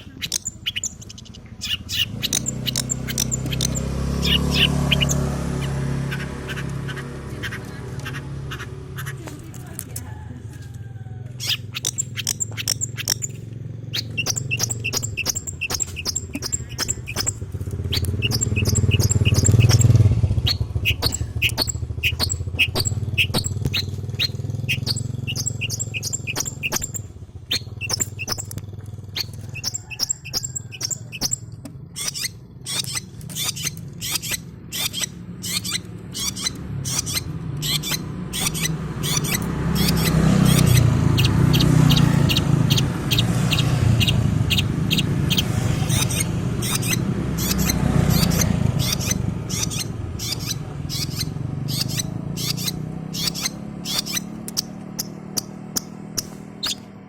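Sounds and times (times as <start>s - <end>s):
bird chirping and clicking: 0.0s - 57.0s.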